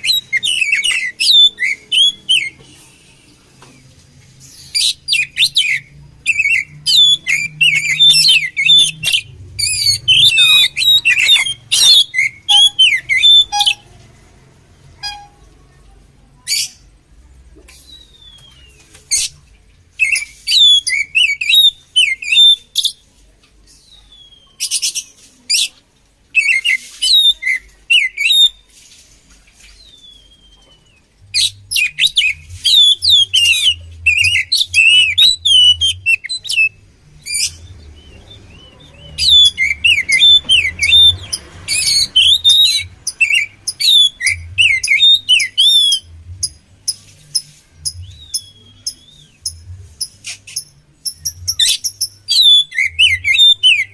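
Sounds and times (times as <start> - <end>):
bird singing whistles and chatter: 0.0 - 3.4, 4.5 - 13.9, 20.0 - 23.0, 26.3 - 28.7, 29.6 - 53.9.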